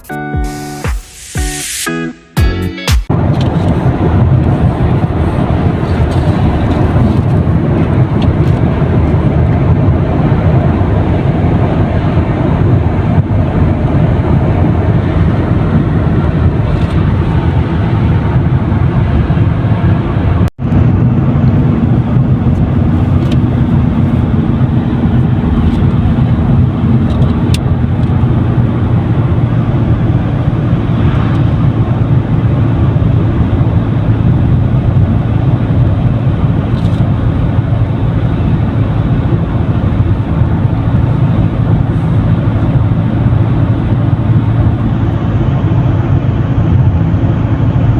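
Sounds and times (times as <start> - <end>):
road noise: 0.0 - 47.9
car engine: 3.0 - 47.9.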